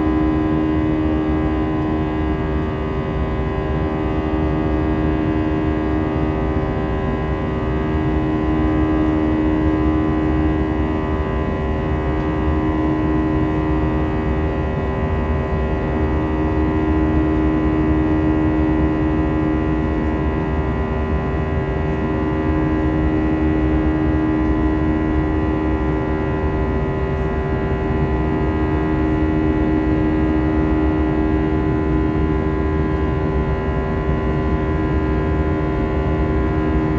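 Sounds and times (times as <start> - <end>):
jet engines in passenger cabin: 0.0 - 36.9.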